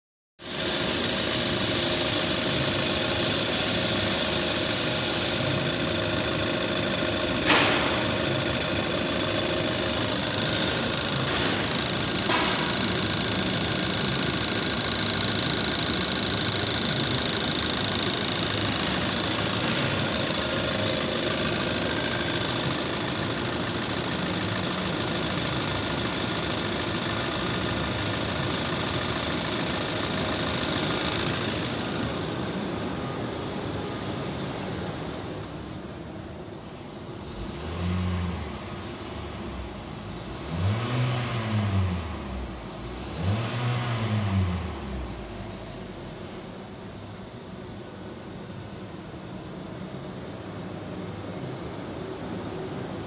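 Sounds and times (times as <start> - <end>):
car engine idling: 1.6 - 37.4.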